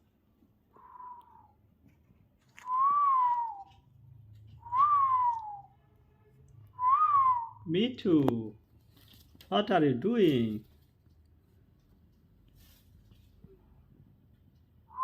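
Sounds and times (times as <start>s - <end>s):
whistled notes sliding down: 0.8s - 1.6s, 2.6s - 3.8s, 4.6s - 5.7s, 6.8s - 7.6s.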